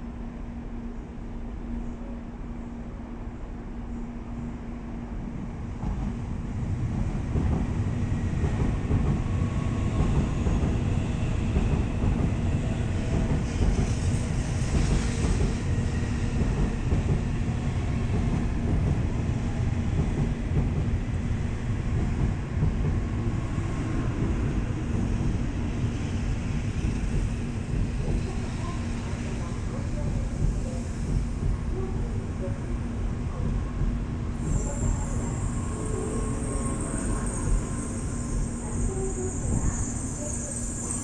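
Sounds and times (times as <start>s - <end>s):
train carriages rumbling: 5.8s - 41.0s.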